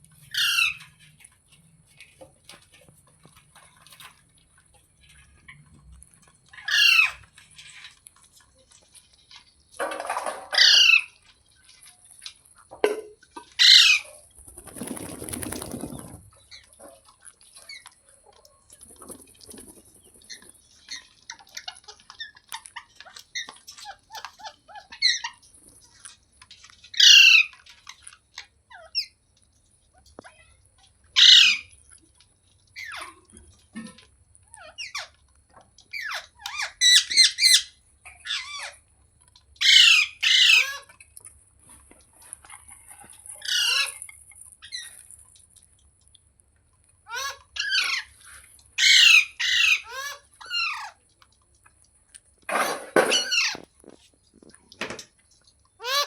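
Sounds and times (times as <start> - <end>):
parakeet squawking: 0.3 - 0.8, 13.6 - 14.0, 27.0 - 27.5, 31.2 - 31.7, 39.6 - 40.9, 47.1 - 48.1, 48.8 - 51.0, 52.6 - 53.6, 55.8 - 56.0
parakeet chattering: 48.8 - 51.0, 55.8 - 56.0.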